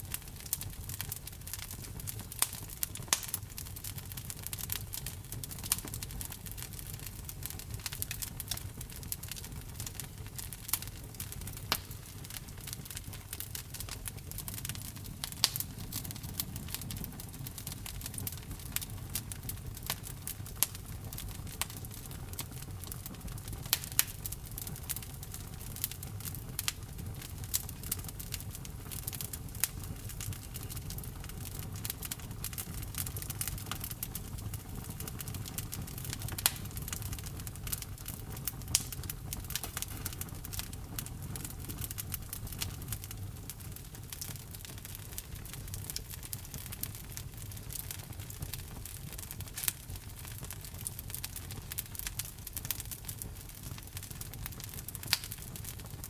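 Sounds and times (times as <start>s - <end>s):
logs crackling and popping: 0.0s - 56.0s
low rumble of flames: 0.0s - 56.0s.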